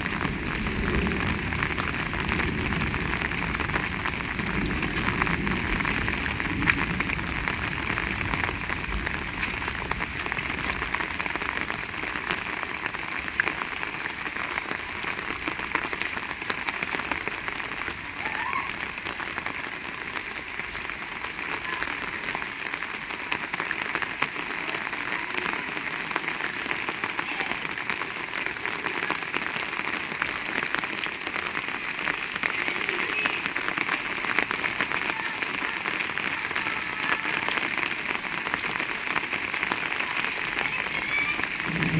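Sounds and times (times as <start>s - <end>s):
heavy rain falling: 0.0s - 41.9s
low rumble: 41.6s - 41.9s.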